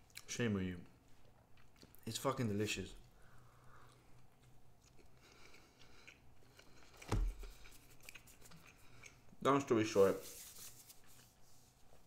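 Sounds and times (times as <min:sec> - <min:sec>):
person chewing food: 0:01.1 - 0:02.0, 0:03.8 - 0:09.4.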